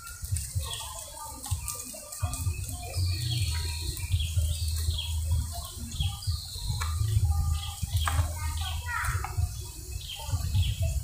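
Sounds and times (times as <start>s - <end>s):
steady low rumble: 2.3s - 11.0s.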